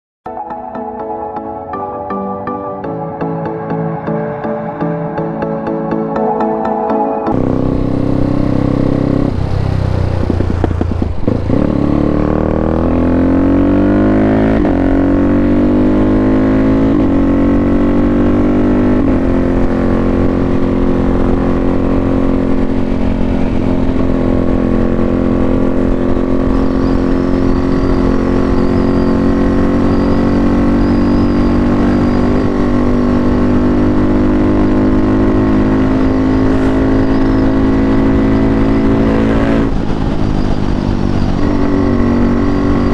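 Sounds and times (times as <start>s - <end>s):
motorcycle engine revving: 7.3s - 42.9s.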